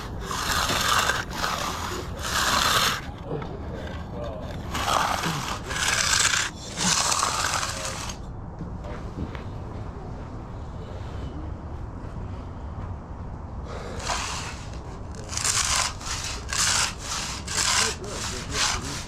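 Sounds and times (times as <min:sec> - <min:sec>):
tool scraping fresh concrete: 0:00.0 - 0:08.3, 0:13.8 - 0:19.0.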